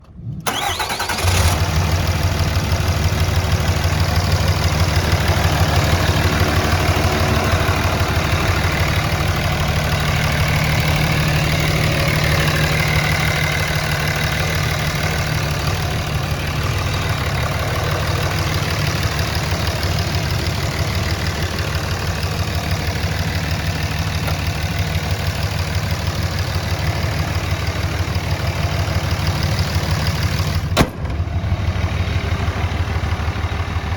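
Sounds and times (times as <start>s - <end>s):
pickup engine idling: 0.4s - 33.9s.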